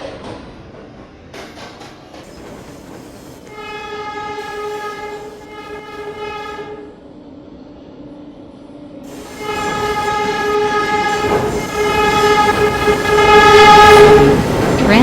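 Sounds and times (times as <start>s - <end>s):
subway train running: 0.0s - 15.0s
train horn blast: 3.5s - 7.0s, 9.1s - 15.0s.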